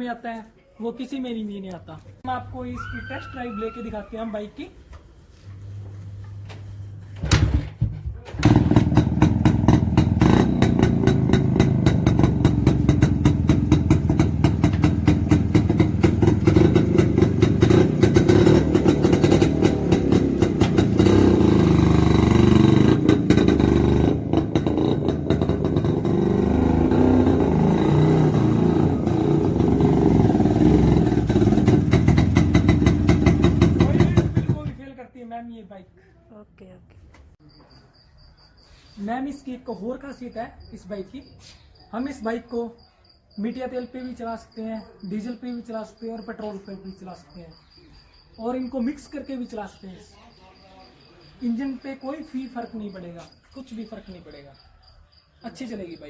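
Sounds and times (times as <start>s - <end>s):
motorcycle engine popping exhaust: 7.8s - 34.8s.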